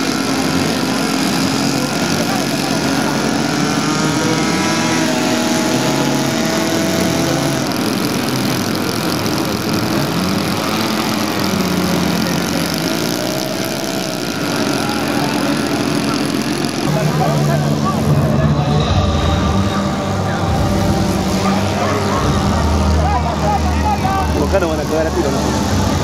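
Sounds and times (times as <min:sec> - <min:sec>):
model airplane engines running: 0:00.0 - 0:26.0.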